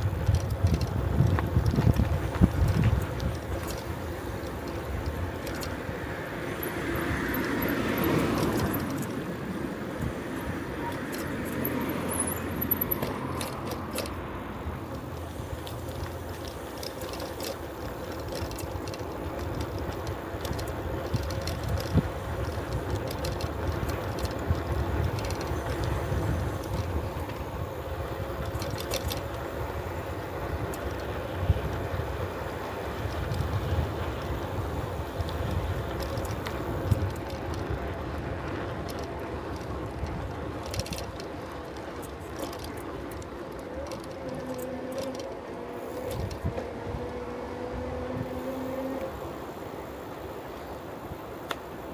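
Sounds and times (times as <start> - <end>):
wind on microphone: 0.0 - 4.1
bicycle tyres rolling on road: 0.0 - 51.9.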